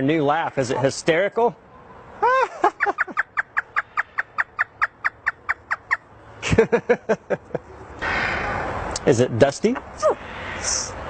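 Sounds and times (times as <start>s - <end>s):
parrot imitating laughter: 2.2s - 5.9s.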